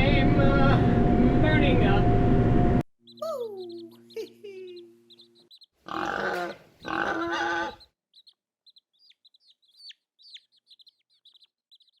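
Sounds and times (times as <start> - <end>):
birds chirping: 3.0 - 12.0.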